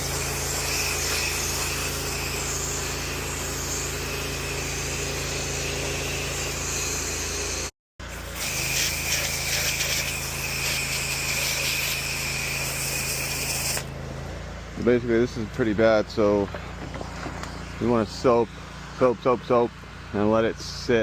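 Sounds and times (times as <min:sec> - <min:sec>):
water spray hissing: 0:00.0 - 0:05.6, 0:08.0 - 0:13.9
pressure washer engine running: 0:00.0 - 0:21.0.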